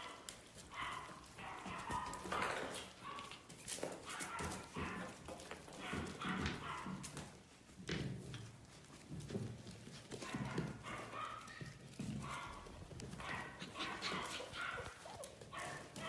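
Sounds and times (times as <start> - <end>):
scuffling and small knocks: 0.0 - 16.0
puppies making short vocal sounds: 11.0 - 16.0.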